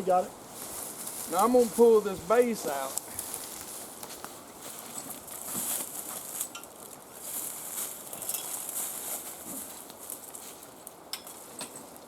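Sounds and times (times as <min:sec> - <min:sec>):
dry leaves rustling and crunching: 0:00.1 - 0:11.6
light metal clinks: 0:08.2 - 0:08.6.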